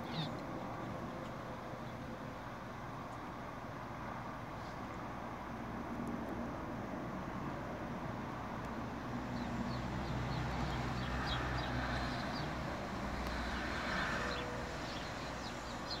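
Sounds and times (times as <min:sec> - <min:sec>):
small birds chirping: 0:00.0 - 0:00.4, 0:09.3 - 0:16.0.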